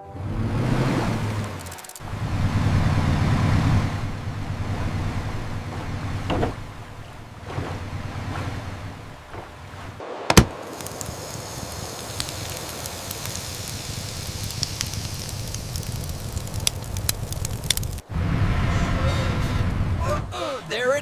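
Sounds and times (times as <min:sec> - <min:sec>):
motorboat engine rumble: 0:00.0 - 0:20.4
sharp crack: 0:01.2 - 0:02.2, 0:08.9 - 0:18.1
scattered clicks: 0:01.4 - 0:02.1, 0:10.3 - 0:18.0
hiss of spray: 0:10.0 - 0:17.3.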